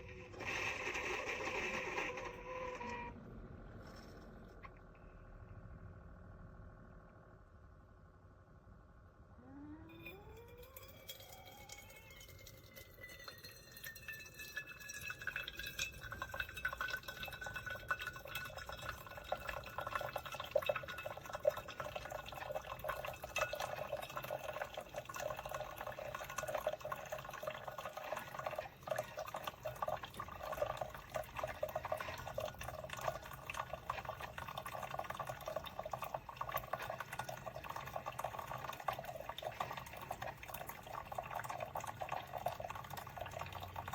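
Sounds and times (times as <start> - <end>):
coffee maker hissing and gurgling: 0.0 - 3.1, 10.0 - 43.9
short rising tone: 9.4 - 10.9.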